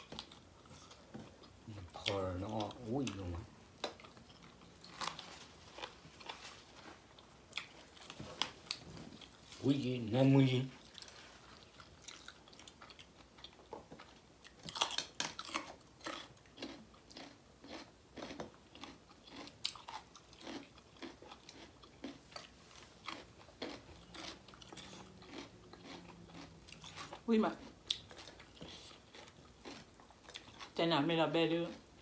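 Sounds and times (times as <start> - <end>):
wet chewing and lip smacks: 10.8 - 30.8.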